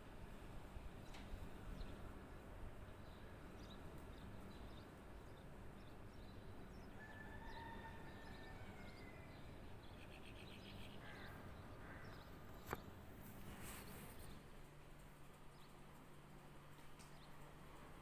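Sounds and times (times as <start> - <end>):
low background hum: 0.0 - 18.0
faint birds calling: 8.8 - 14.4.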